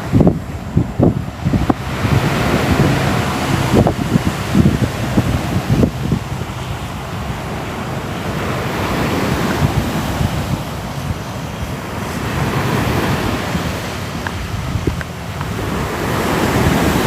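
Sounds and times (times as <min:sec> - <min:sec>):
sea waves washing onto shore: 0:00.0 - 0:17.0.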